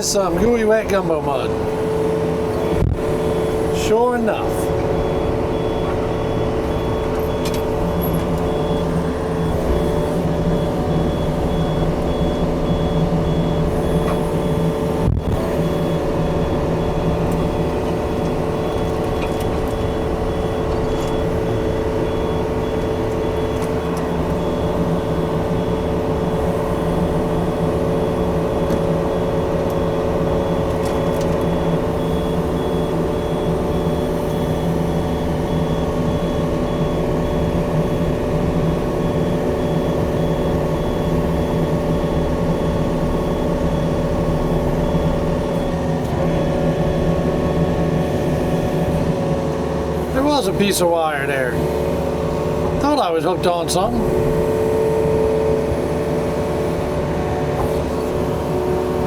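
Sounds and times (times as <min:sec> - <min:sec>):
excavator diesel engine running: 0:00.0 - 0:59.0
travel alarm beeping: 0:00.0 - 0:59.0.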